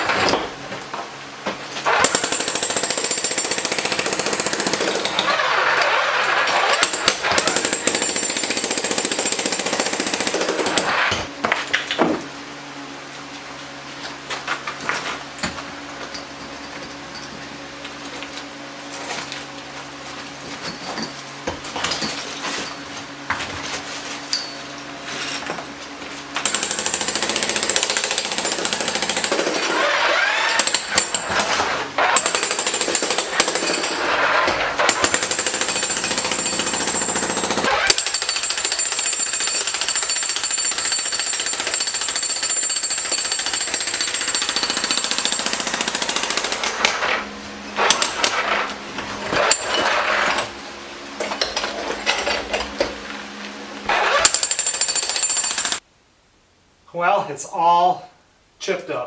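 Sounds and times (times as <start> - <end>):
jackhammer breaking concrete: 1.8 - 11.9, 26.4 - 50.6, 53.9 - 55.8.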